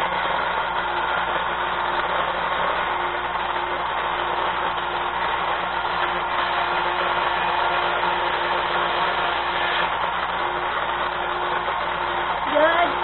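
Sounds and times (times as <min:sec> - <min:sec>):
electric chain grinder running: 0:00.0 - 0:13.0.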